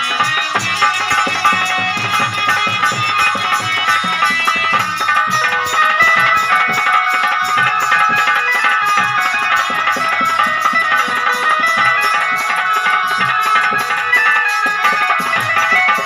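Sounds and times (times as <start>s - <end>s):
hand drum rhythm: 0.0s - 16.0s
sustained melody instrument: 0.0s - 16.0s.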